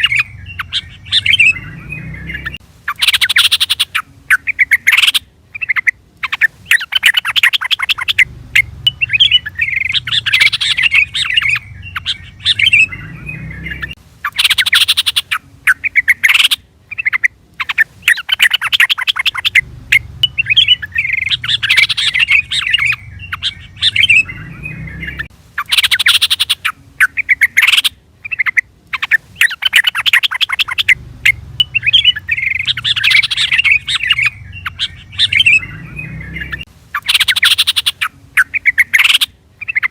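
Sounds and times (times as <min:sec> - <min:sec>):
bulbul chirping: 0:00.0 - 0:39.9.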